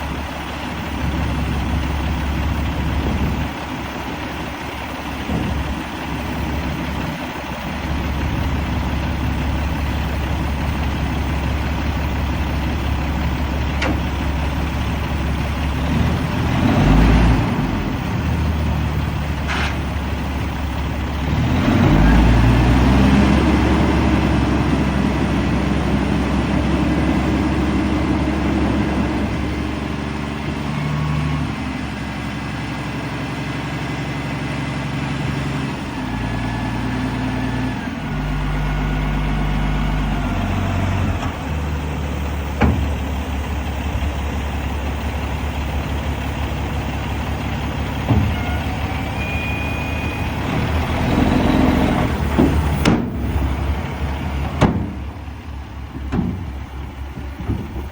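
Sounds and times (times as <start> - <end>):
diesel truck engine running: 0.0 - 57.9
sharp knocks: 52.3 - 53.4, 54.5 - 55.1.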